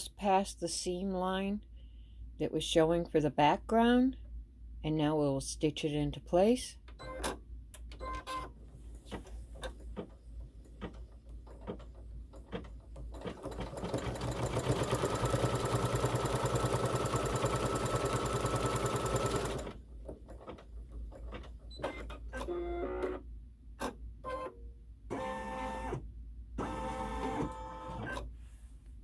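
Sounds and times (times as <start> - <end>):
embroidery machine stitching: 11.4 - 23.1.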